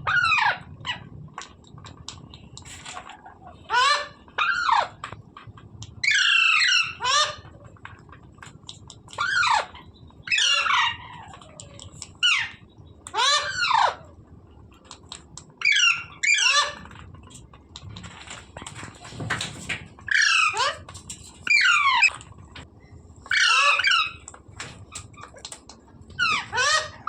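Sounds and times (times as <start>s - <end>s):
parrot squawking: 0.0s - 1.0s, 3.2s - 5.0s, 6.0s - 7.5s, 9.2s - 14.1s, 15.6s - 17.0s, 20.1s - 22.1s, 23.3s - 24.3s, 26.2s - 27.0s.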